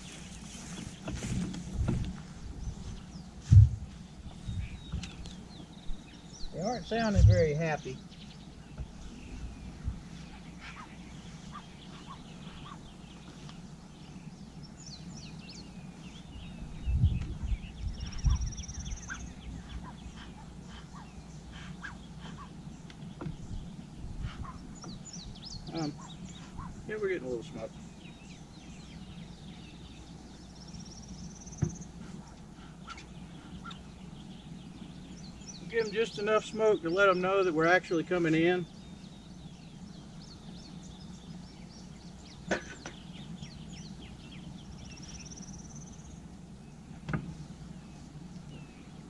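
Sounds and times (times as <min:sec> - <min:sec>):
birds chirping: 0:00.0 - 0:49.0
honeybees humming: 0:00.0 - 0:49.0
low outdoor rumble: 0:00.0 - 0:49.0
low thump: 0:03.5 - 0:03.9
bird trilling: 0:04.5 - 0:13.3, 0:14.0 - 0:26.9.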